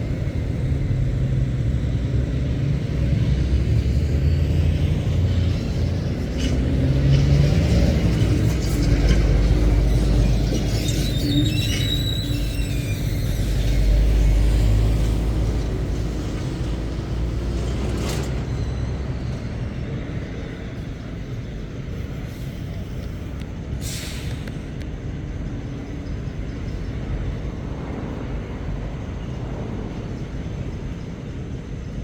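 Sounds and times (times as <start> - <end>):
diesel truck engine rumbling: 0.0 - 32.0
air brake hiss: 23.8 - 24.7.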